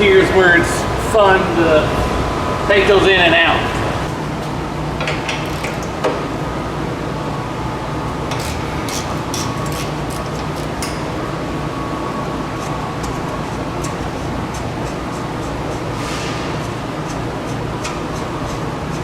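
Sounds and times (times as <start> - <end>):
steady background hum: 0.0 - 19.0
metallic scrapes on exhaust: 12.2 - 19.0.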